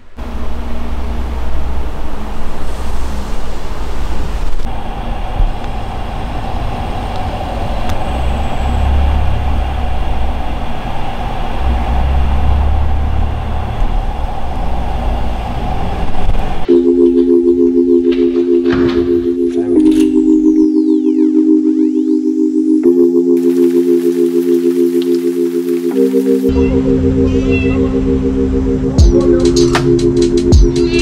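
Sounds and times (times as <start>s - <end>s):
music: 16.7s - 31.0s.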